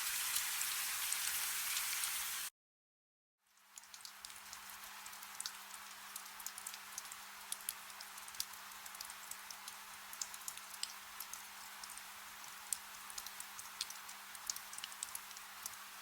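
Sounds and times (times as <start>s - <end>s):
soft rain hiss: 0.0s - 2.5s, 3.5s - 16.0s
raindrops ticking on a surface: 3.5s - 16.0s.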